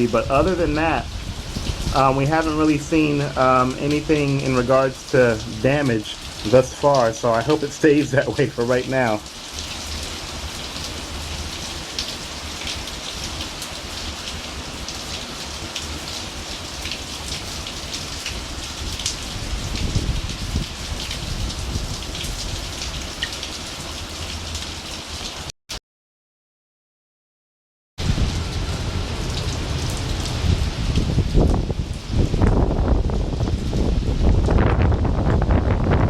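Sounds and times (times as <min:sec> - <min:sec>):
wind rumbling on microphone: 0:00.0 - 0:06.6, 0:17.3 - 0:23.2, 0:28.0 - 0:36.0
heavy rain pattering: 0:00.0 - 0:25.5, 0:28.0 - 0:36.0.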